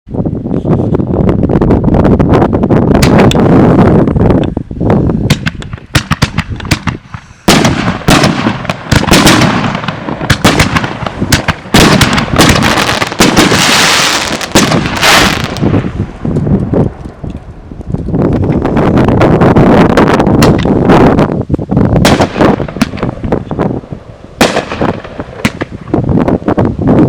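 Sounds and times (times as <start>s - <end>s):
wind buffeting microphone: 0.1s - 27.0s
fireworks popping and crackling: 0.5s - 27.0s.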